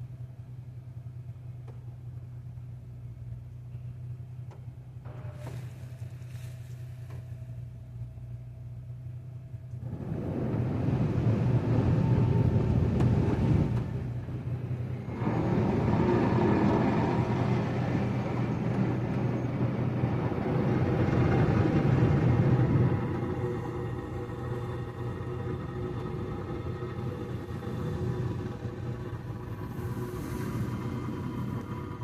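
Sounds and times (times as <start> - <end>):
car wash equipment humming: 0.0 - 32.0
rushing rumbling wash noise: 9.7 - 32.0.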